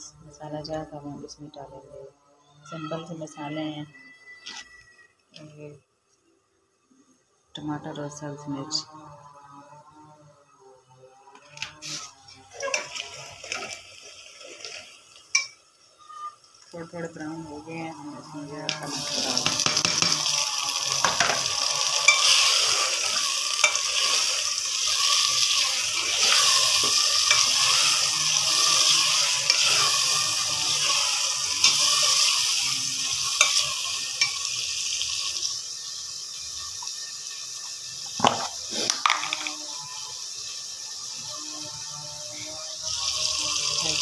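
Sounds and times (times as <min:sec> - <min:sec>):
vegetables sizzling in hot oil: 0:11.4 - 0:44.0
spoon scraping metal pot: 0:11.6 - 0:15.6, 0:18.7 - 0:34.6.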